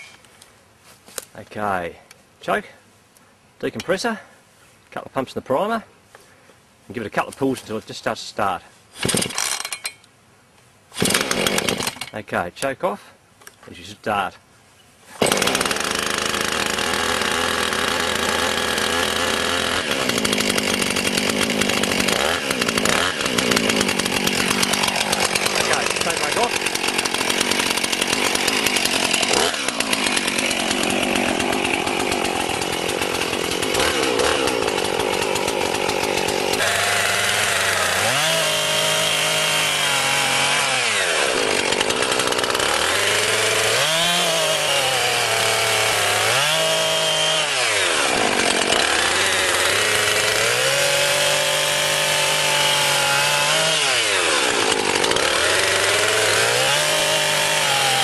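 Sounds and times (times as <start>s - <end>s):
chainsaw cutting wood: 0.0s - 0.2s, 9.0s - 10.0s, 11.0s - 12.2s, 15.2s - 58.0s.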